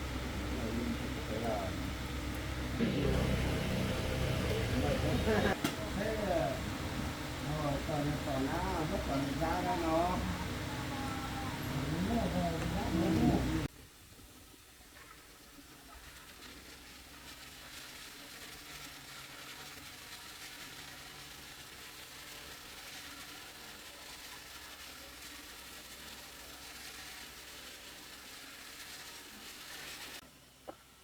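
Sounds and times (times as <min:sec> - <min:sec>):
low hum: 0:00.0 - 0:13.7
steady hiss: 0:00.0 - 0:31.0.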